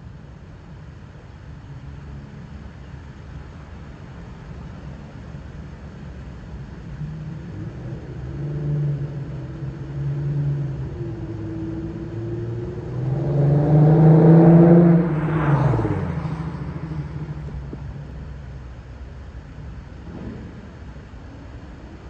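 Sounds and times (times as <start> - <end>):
car exhaust driving past: 6.9 - 18.8.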